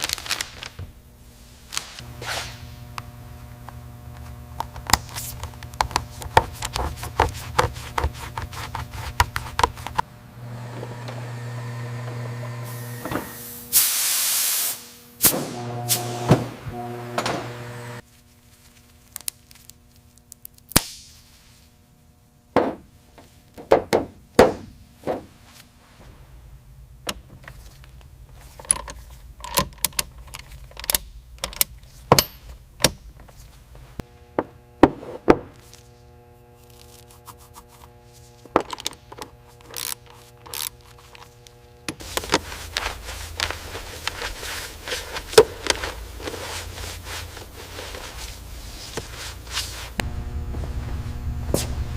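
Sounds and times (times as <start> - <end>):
faint steady hum: 0.7 - 13.7, 14.8 - 51.9
tools knocking and thunking: 22.6 - 22.9, 23.6 - 25.3.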